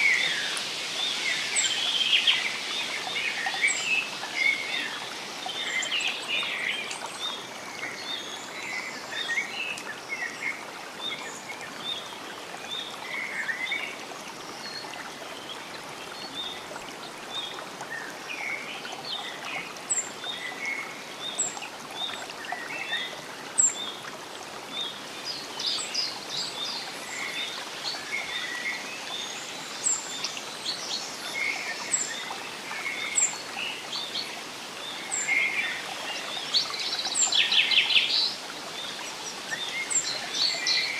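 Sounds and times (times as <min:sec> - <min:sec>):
running water hiss: 0:00.0 - 0:40.9.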